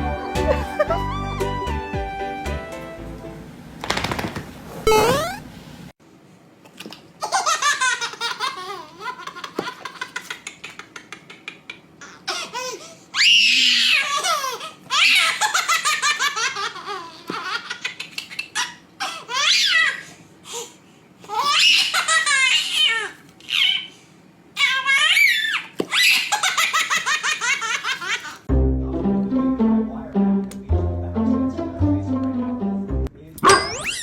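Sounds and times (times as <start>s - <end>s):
baby laughing: 7.2s - 12.9s, 13.8s - 20.1s, 21.2s - 23.9s, 24.6s - 28.4s.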